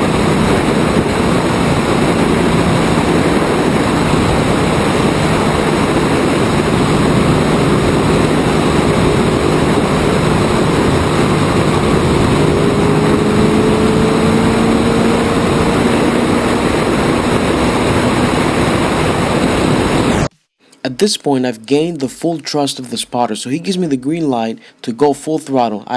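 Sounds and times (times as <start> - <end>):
faint race car engine: 0.0 - 20.3
wind rush over microphone: 0.0 - 20.3.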